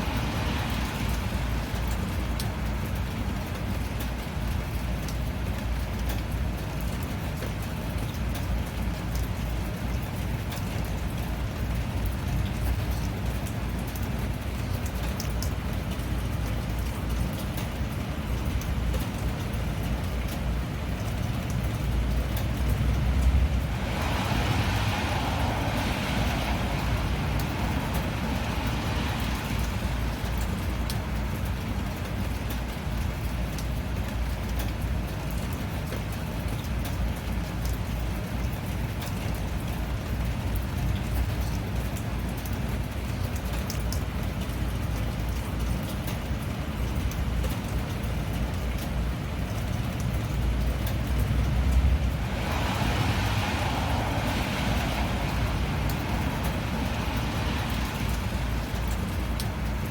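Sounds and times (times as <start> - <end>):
steady rain falling: 0.0 - 59.9
deep rumble and hiss: 22.3 - 31.6, 50.3 - 59.9.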